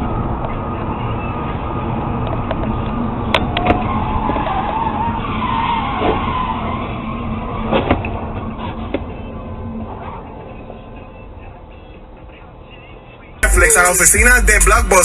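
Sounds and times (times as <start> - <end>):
car tyres squealing: 0.0 - 14.2
road noise: 0.0 - 15.0.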